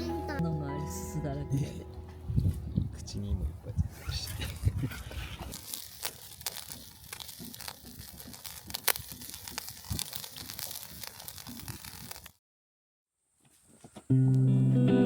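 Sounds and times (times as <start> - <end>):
aluminium foil crinkling: 4.4 - 12.4.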